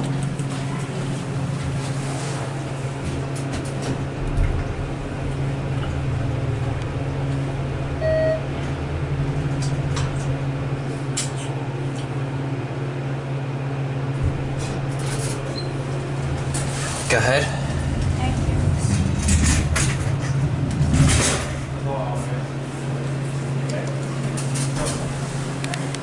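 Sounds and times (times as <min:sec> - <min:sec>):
elevator hum: 0:00.0 - 0:26.0
short electronic beep: 0:08.0 - 0:08.4.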